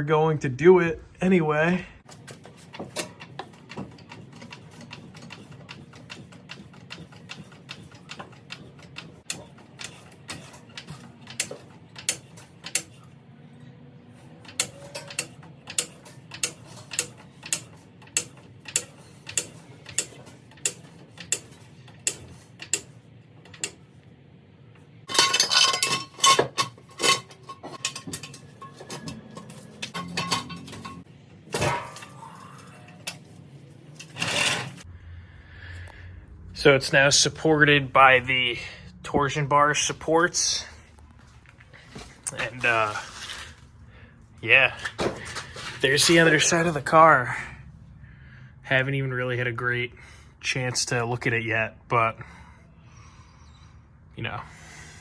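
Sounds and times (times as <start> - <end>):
floor jack clicking: 2.1 - 13.0
metallic clanks and clinks: 14.4 - 23.8, 25.1 - 33.4.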